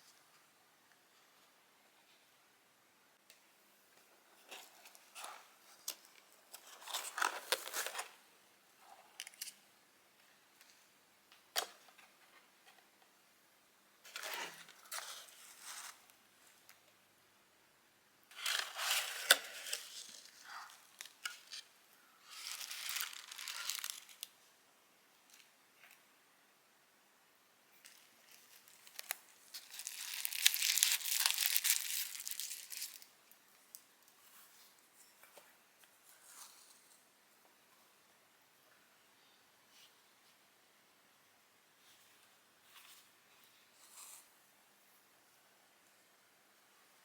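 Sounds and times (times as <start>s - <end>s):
wrapping crinkling and tearing: 18.3s - 24.4s, 27.8s - 33.1s.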